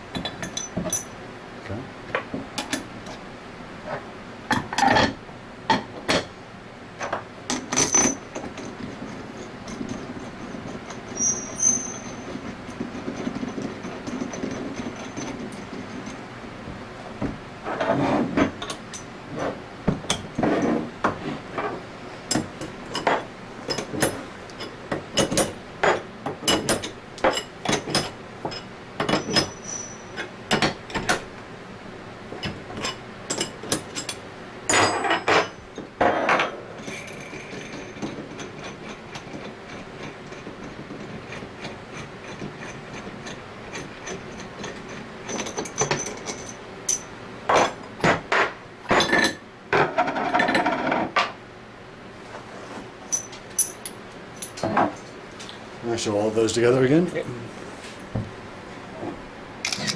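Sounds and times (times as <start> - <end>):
hand tools clicking and knocking: 18.4 - 31.2, 37.1 - 51.1.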